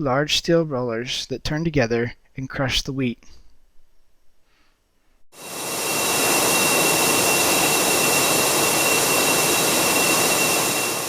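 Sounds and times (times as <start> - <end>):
thin high whine: 5.4 - 11.0.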